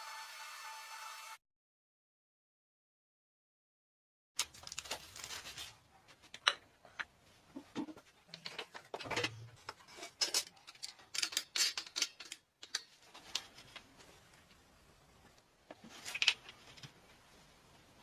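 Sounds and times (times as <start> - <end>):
metal parts clicking and scraping: 8.3 - 13.6.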